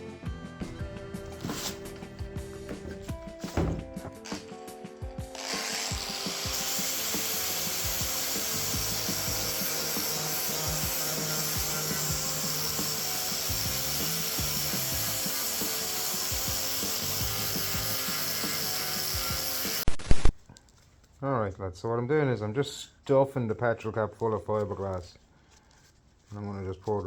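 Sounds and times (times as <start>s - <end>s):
power grinder grinding fibreglass: 1.3s - 4.6s, 5.3s - 19.9s.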